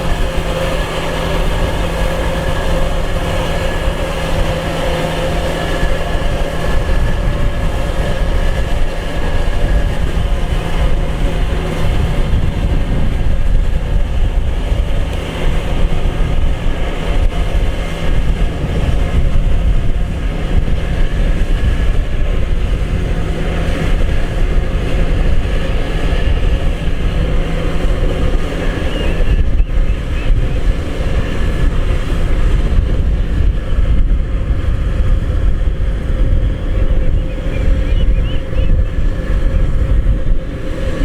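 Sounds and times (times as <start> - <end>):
combine harvester engine rumble: 0.0 - 41.0
steady hum: 0.0 - 41.0.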